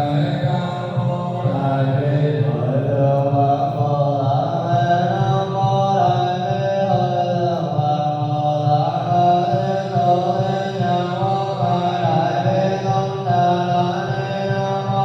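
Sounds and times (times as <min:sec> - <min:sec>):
many voices chanting: 0:00.0 - 0:06.3.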